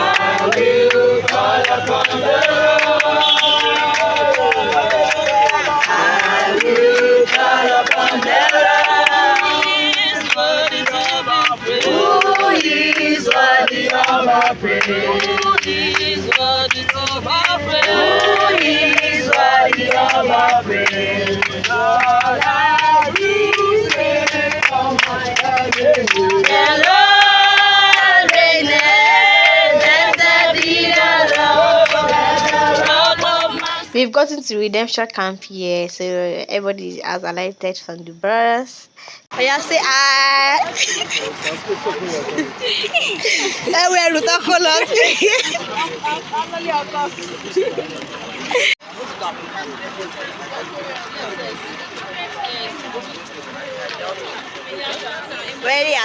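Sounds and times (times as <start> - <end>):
choir singing: 0.0 - 34.0.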